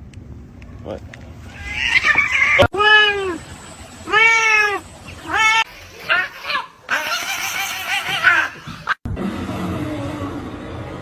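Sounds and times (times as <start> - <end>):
cat meowing: 1.5 - 3.4, 4.1 - 8.6.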